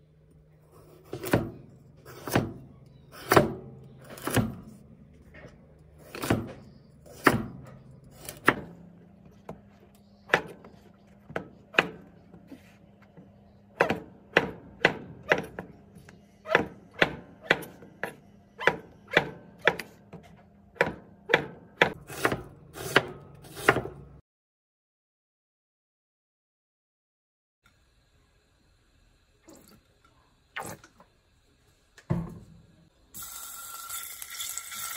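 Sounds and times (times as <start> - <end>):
knife chopping on wooden board: 1.0 - 2.6, 13.8 - 15.7, 16.5 - 24.0.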